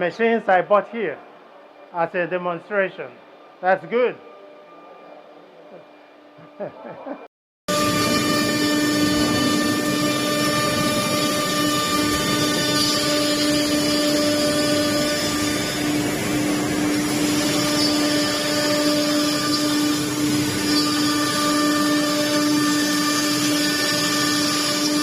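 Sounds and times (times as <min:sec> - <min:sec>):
woodworking machine motor whine: 0:07.7 - 0:25.0.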